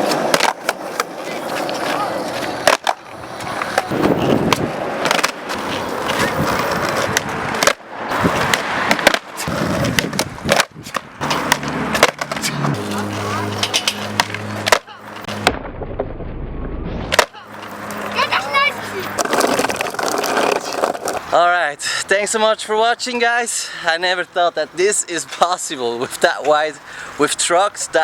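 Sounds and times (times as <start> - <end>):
skateboard clacking on ground: 0.0 - 15.4, 17.1 - 21.3
skateboard rolling on pavement: 0.0 - 15.5, 17.1 - 21.5.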